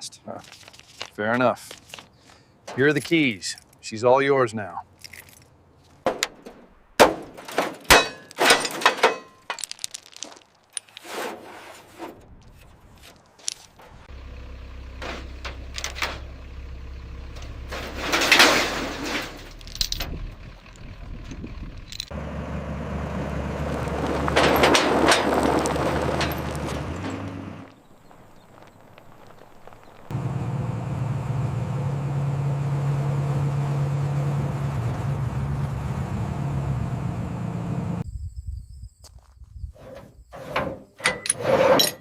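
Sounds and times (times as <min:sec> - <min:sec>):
sharp knocks and clatters: 0:05.1 - 0:11.4, 0:24.0 - 0:27.4
vehicle engine running: 0:13.8 - 0:38.0.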